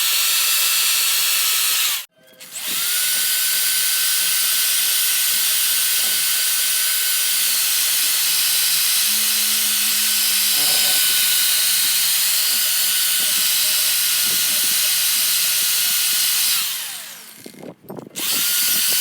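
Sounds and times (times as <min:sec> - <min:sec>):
power tool motor whining: 0:00.0 - 0:19.0.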